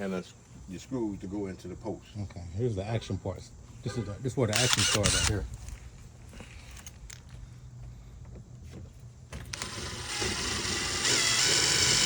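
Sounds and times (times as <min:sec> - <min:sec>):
impact driver whining: 0:04.5 - 0:05.5, 0:09.4 - 0:12.0.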